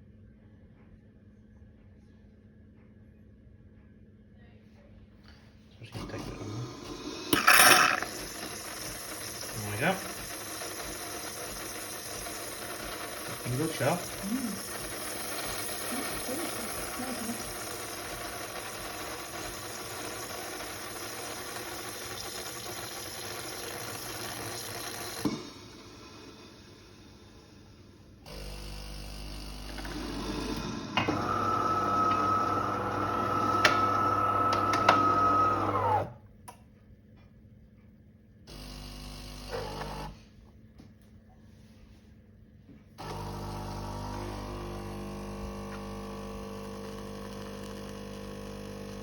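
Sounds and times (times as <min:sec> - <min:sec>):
motor and pump humming: 0:05.9 - 0:27.1, 0:28.2 - 0:36.2, 0:38.5 - 0:40.2, 0:43.0 - 0:49.0
coffee machine hissing and frothing: 0:05.9 - 0:36.2, 0:38.5 - 0:40.2, 0:43.0 - 0:49.0.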